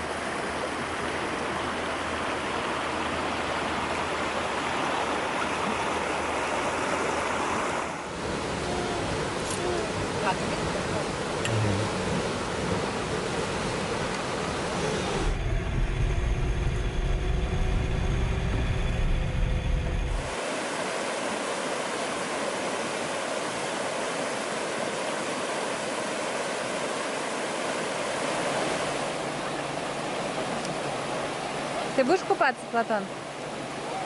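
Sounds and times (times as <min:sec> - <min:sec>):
river rushing over rapids: 0:00.0 - 0:15.4, 0:20.1 - 0:34.0
deep low rumble: 0:15.2 - 0:20.3.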